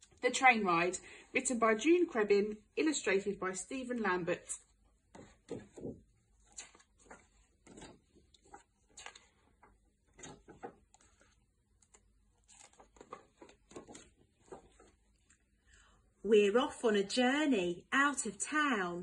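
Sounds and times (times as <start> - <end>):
faint clicks and rustles: 4.6 - 15.5.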